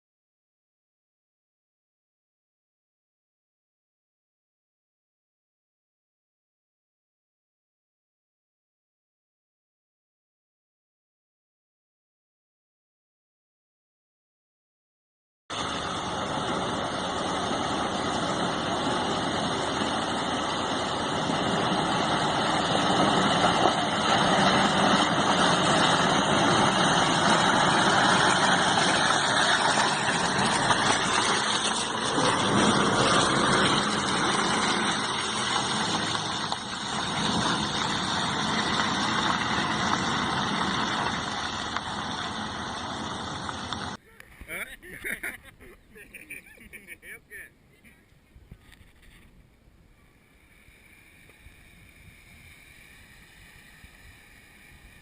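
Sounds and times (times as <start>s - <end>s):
suv engine driving off-road: 15.5s - 55.0s.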